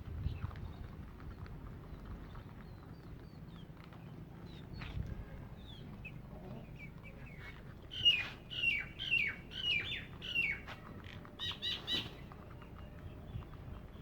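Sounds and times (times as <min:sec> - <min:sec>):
bird calling: 0:04.5 - 0:14.0.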